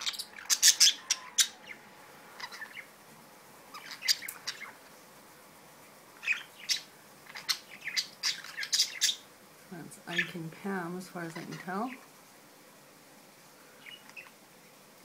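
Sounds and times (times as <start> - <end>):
budgerigars chirping: 0.0 - 1.8, 2.4 - 2.9, 3.7 - 4.8, 6.2 - 9.3, 11.3 - 12.0.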